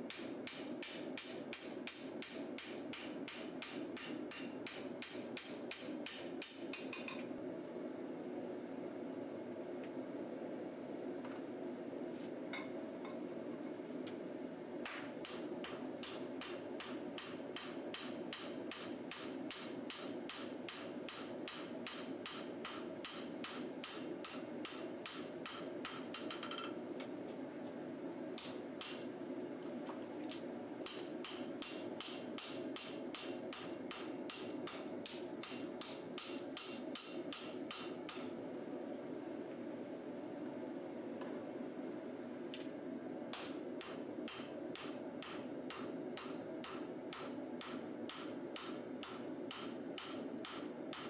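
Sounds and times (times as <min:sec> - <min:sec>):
hammer striking steel on anvil: 0:00.1 - 0:07.2, 0:14.9 - 0:26.7, 0:28.4 - 0:29.0, 0:30.8 - 0:38.3, 0:43.3 - 0:51.0.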